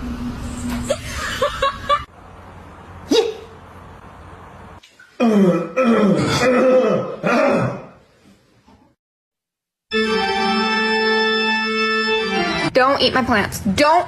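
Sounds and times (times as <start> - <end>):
organ-like music with sustained chords: 9.9 - 12.7.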